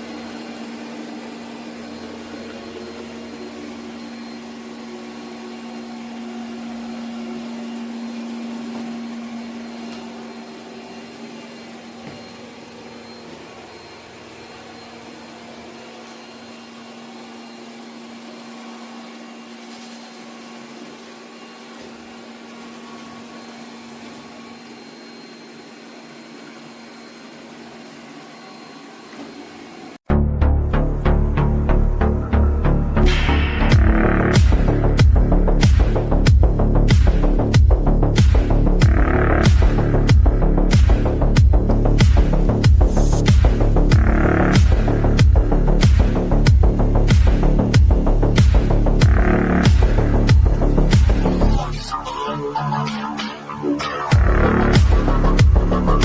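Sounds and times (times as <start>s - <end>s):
robot vacuum cleaner whirring: 0.0s - 30.0s.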